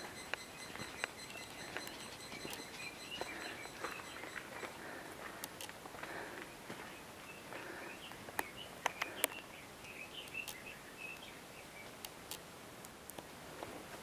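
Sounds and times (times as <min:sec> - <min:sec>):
sharp clicks: 0:00.0 - 0:04.5
bird singing high chirps: 0:00.0 - 0:04.8
steady outdoor hush: 0:00.0 - 0:14.0.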